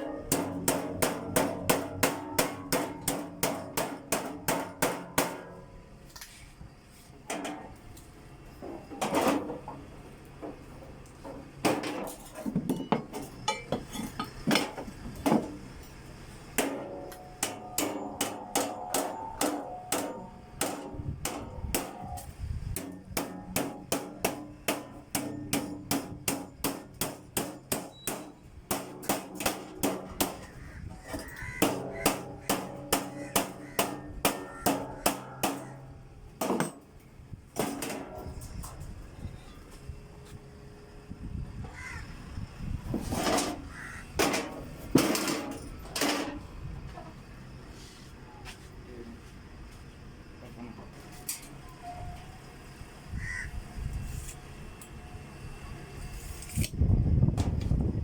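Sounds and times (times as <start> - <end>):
hammer striking sheet metal: 0.0 - 5.6, 16.6 - 36.8, 37.6 - 38.4.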